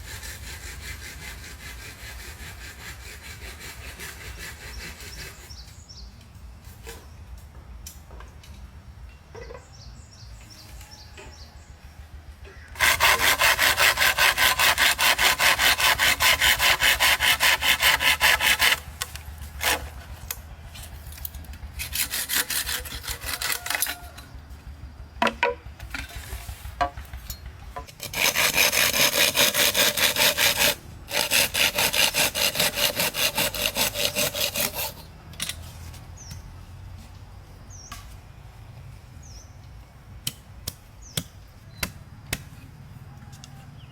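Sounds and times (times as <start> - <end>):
saw cutting wood: 0.0 - 5.6, 12.8 - 20.3, 21.7 - 24.2, 27.9 - 35.1.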